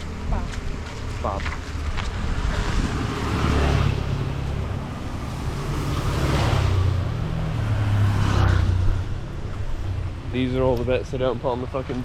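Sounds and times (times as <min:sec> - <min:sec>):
wind buffeting microphone: 0:00.0 - 0:05.3
low drone of traffic: 0:00.0 - 0:12.0.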